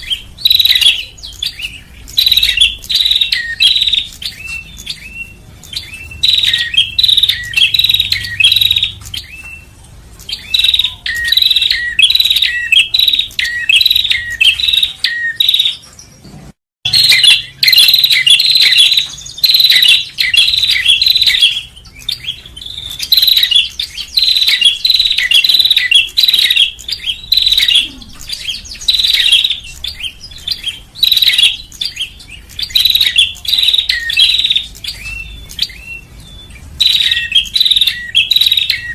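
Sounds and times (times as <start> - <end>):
bird chirping phrases: 0.0 - 38.9.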